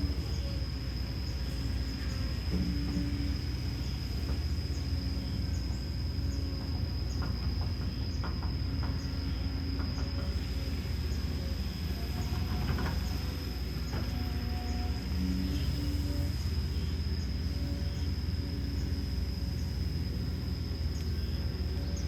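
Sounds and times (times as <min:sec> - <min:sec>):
diesel excavator engine rumbling: 0:00.0 - 0:22.0.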